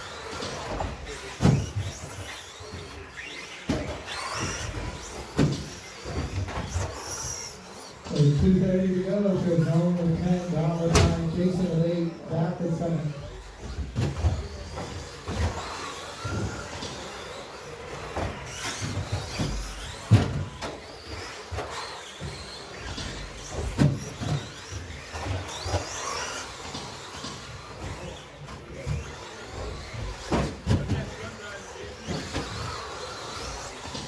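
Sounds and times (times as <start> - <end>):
high-pitched motor whines: 0.0 - 34.0.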